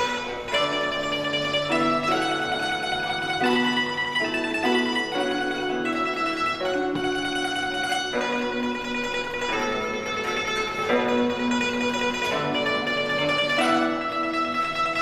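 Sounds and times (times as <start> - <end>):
zither plucked melody: 0.0 - 15.0.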